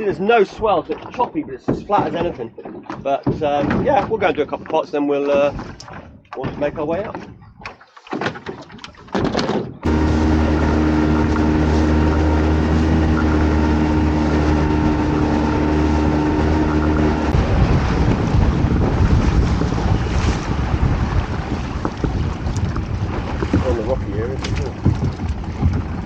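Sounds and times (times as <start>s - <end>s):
rushing wind and water: 0.0s - 26.0s
outboard motor running: 8.7s - 26.0s.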